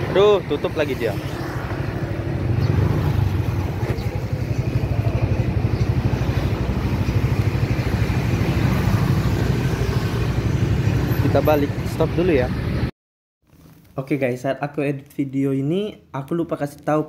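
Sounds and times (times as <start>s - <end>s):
motorbike engine running: 2.4s - 10.9s.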